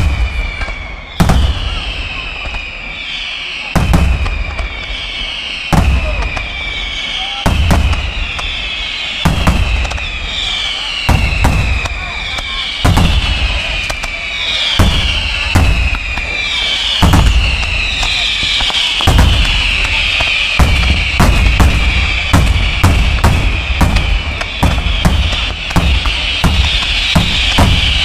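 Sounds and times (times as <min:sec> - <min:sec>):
high falling whistle: 0:00.0 - 0:28.0
firework shells banging: 0:14.8 - 0:28.0.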